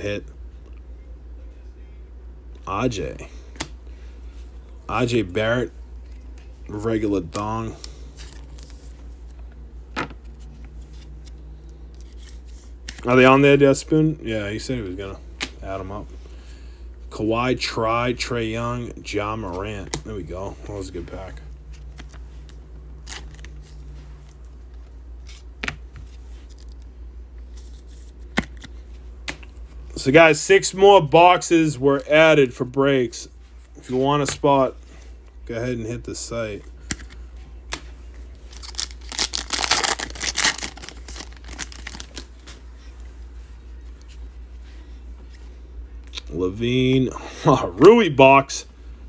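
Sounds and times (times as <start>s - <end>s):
steady low hum: 0.0s - 49.0s
card packaging rustling and clicking: 20.8s - 24.4s, 36.8s - 43.0s
foil wrapper tearing and crinkling: 38.5s - 42.4s.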